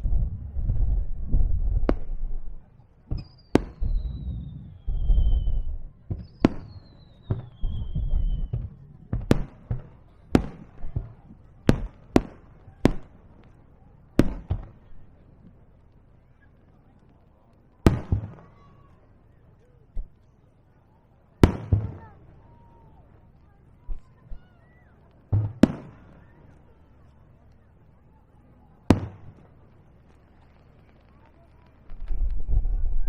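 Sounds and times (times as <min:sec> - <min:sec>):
sharp fireworks bangs: 0:00.0 - 0:15.5, 0:17.8 - 0:18.9, 0:21.4 - 0:24.6, 0:25.2 - 0:26.6, 0:28.8 - 0:33.0
fireworks booming: 0:00.0 - 0:15.6, 0:17.8 - 0:18.9, 0:21.4 - 0:23.0, 0:25.1 - 0:26.6, 0:28.8 - 0:33.0
fireworks whistles falling in pitch: 0:03.1 - 0:08.7.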